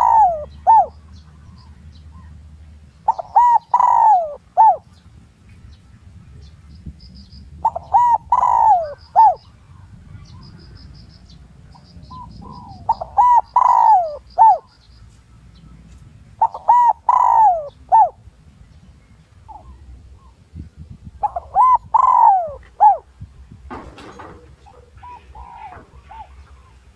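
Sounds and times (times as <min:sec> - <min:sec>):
dove cooing: 0:00.0 - 0:01.0, 0:03.0 - 0:04.8, 0:07.6 - 0:09.5, 0:11.8 - 0:14.7, 0:16.4 - 0:18.2, 0:21.2 - 0:26.9.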